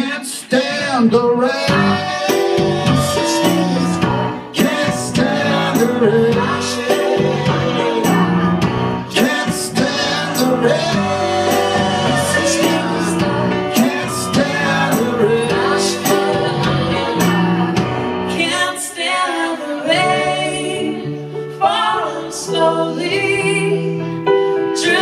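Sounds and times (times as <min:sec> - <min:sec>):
man and woman singing: 0:00.0 - 0:08.2, 0:09.1 - 0:24.0, 0:24.7 - 0:25.0
live band music: 0:00.6 - 0:18.7
drums steady beat: 0:01.7 - 0:18.1.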